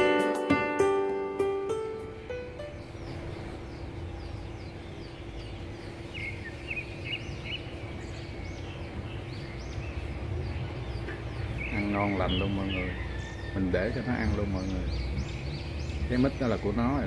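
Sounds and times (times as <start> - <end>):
small birds chirping: 0.0 - 17.0
steady low hum: 1.2 - 13.3
outdoor background rumble: 2.1 - 17.0.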